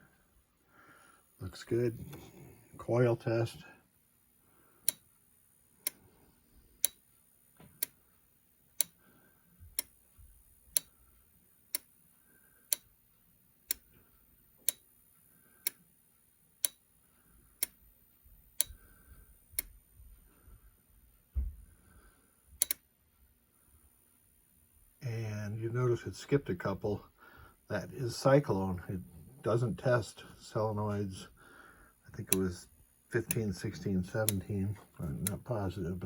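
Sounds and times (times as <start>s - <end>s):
solenoid clicks: 4.9s - 5.1s, 6.8s - 7.0s, 10.8s - 11.0s, 12.7s - 12.9s, 14.6s - 14.9s, 16.6s - 16.8s, 22.6s - 22.8s, 33.2s - 33.6s.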